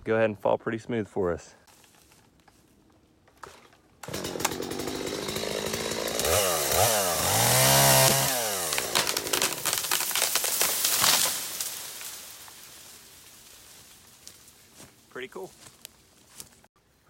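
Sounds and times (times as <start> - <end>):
chainsaw cutting: 4.0 - 12.9
tree cracking: 4.0 - 14.8.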